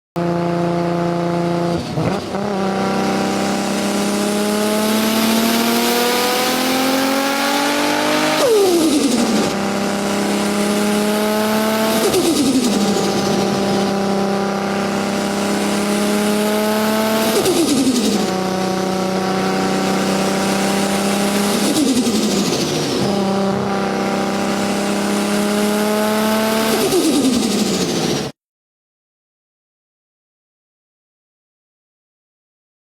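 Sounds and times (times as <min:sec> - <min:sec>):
sports car accelerating hard: 0:00.2 - 0:28.3.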